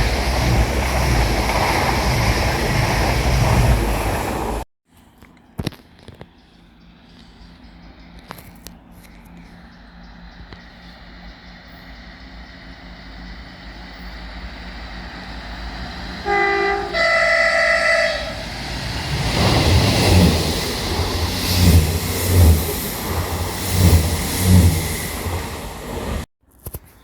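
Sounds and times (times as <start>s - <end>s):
wheels thudding over rail joints: 0.0s - 4.6s
train rumble: 0.0s - 4.7s, 6.0s - 26.3s
two-tone train horn: 16.1s - 18.7s.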